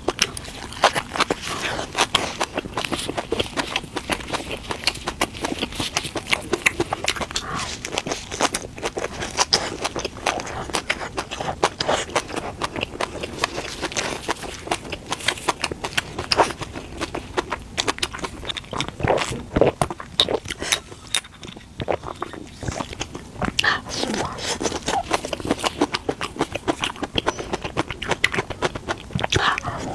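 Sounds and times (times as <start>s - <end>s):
crisp biting and chewing: 0.0s - 29.9s.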